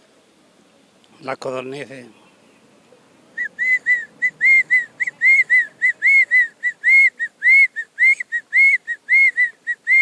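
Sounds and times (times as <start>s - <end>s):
man whistling quail calls: 3.4s - 10.0s.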